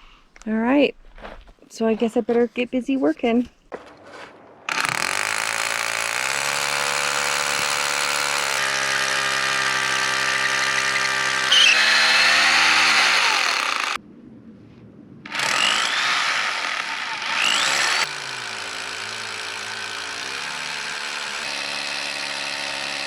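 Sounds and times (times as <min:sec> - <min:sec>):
power tool motor running: 0:04.7 - 0:14.0, 0:15.3 - 0:23.0.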